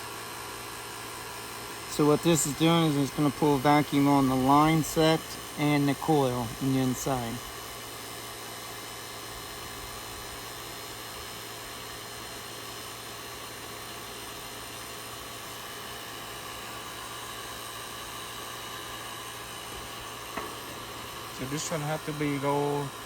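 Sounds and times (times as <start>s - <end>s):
vacuum pump humming and hissing: 0.0s - 23.0s.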